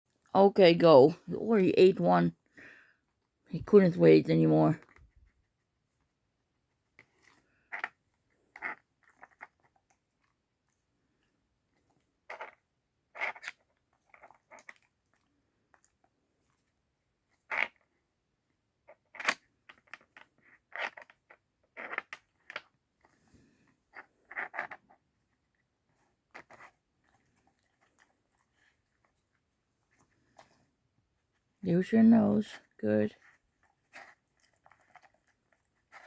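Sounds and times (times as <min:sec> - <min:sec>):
plastic puzzle pieces clacking: 0:19.0 - 0:22.8.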